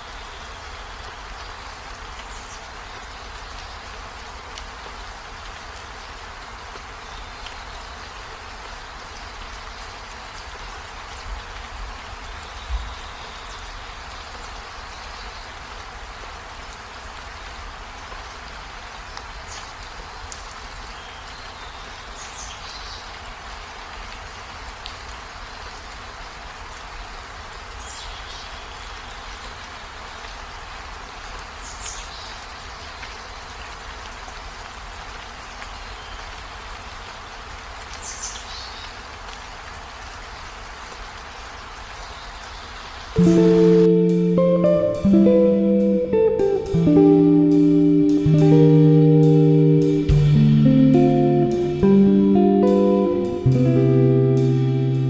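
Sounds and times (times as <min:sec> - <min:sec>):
waterfall rushing: 0:43.2 - 0:55.0.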